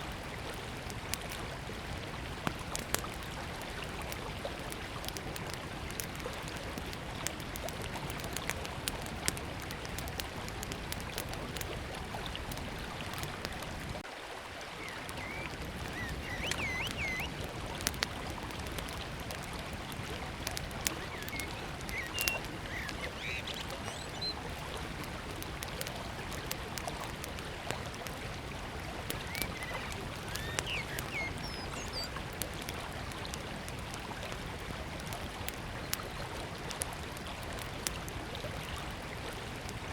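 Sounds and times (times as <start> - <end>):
river running: 0.0 - 39.9
wood fire crackling: 0.1 - 14.0, 14.8 - 39.9
birds chirping: 14.8 - 17.4, 20.8 - 24.4, 29.1 - 32.2.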